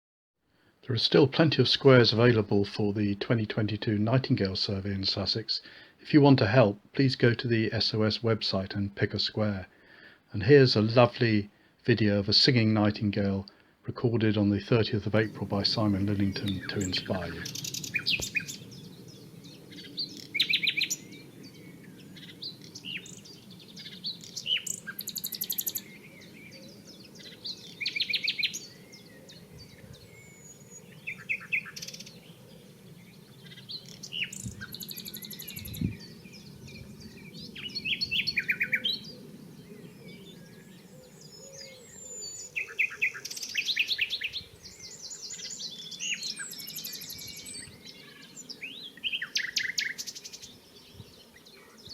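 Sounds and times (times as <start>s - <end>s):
nightingale singing: 14.2s - 51.9s.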